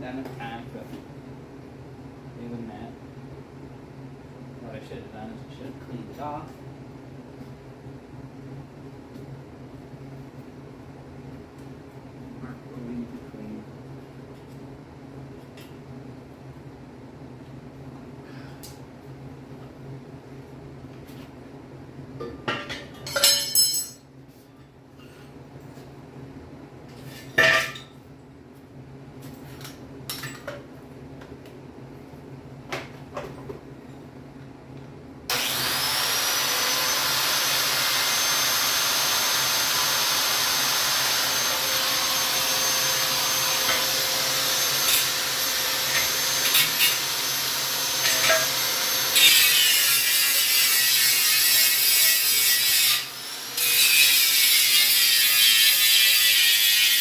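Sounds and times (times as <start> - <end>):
angle grinder grinding steel: 35.3 - 57.0.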